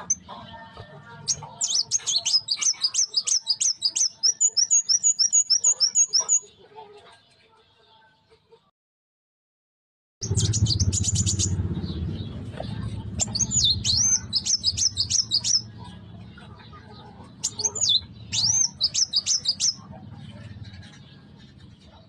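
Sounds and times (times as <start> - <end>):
bird singing: 0.0 - 8.4, 10.2 - 22.0
low rumble: 10.2 - 15.1.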